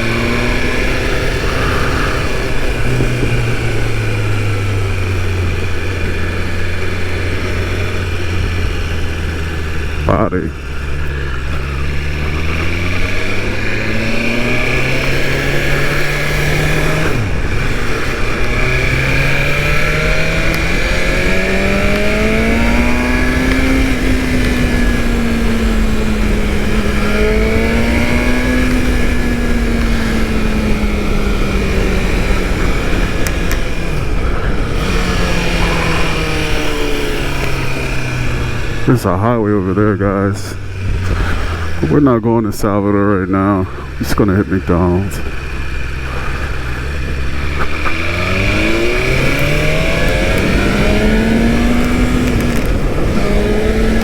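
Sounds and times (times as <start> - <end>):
wind noise on microphone: 0.0 - 5.5
motorcycle engine accelerating: 0.0 - 54.0.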